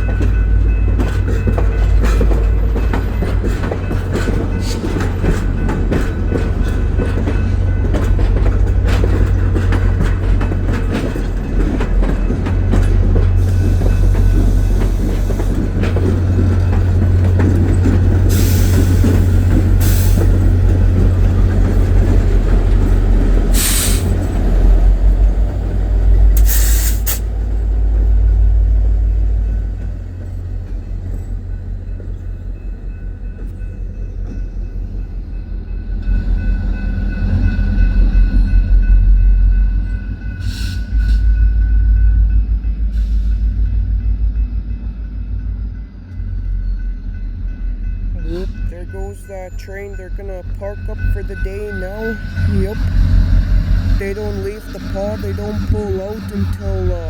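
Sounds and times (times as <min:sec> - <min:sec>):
diesel locomotive engine rumble: 0:00.0 - 0:57.0
wheels clicking over rail joints: 0:00.1 - 0:26.6.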